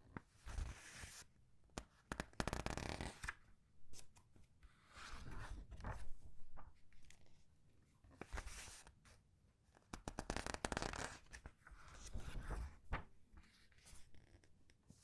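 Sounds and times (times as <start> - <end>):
paper pages rustling: 11.9 - 14.0.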